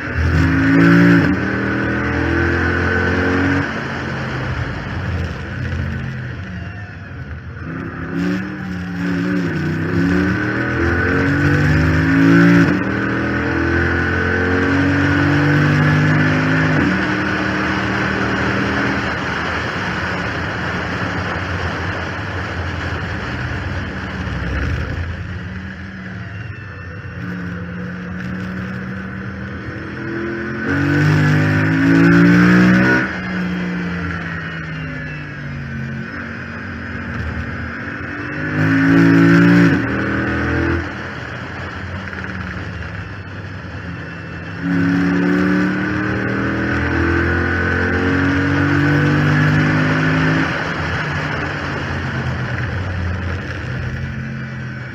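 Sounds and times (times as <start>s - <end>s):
car engine accelerating hard: 0.0s - 54.9s
steady whine: 0.0s - 54.9s.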